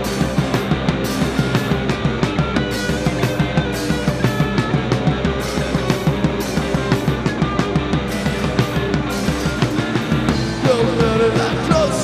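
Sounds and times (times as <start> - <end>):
drum kit beat: 0.0 - 12.0
rock band playing: 0.0 - 12.0.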